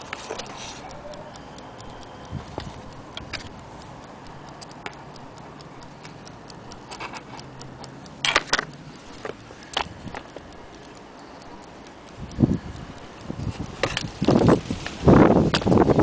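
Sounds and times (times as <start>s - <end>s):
clock ticks and clicks: 0.0s - 16.0s
clicks and knocks: 8.2s - 10.4s.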